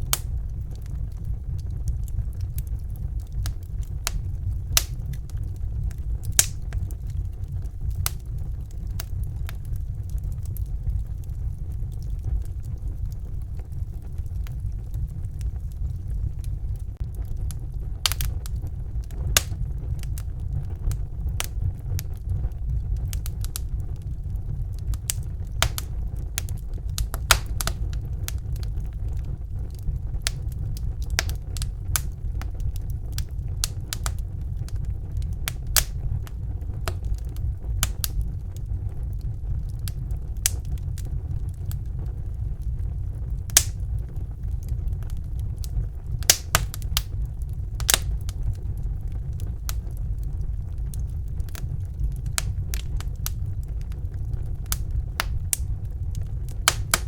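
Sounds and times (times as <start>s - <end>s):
low roar of flames: 0.0s - 57.0s
wood fire crackling and popping: 0.0s - 57.0s.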